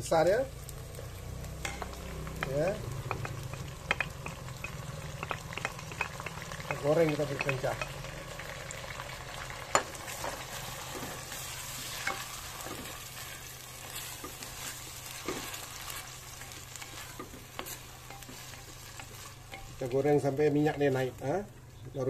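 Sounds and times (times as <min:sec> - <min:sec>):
paste sizzling in hot oil: 0:00.0 - 0:22.0
wooden spatula knocking pot: 0:01.7 - 0:08.1.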